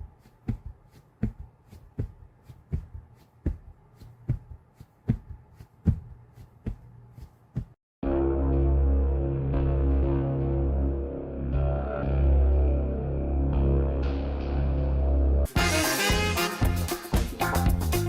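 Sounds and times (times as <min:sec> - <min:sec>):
regular thumps: 0:00.0 - 0:07.8
music: 0:08.0 - 0:18.0.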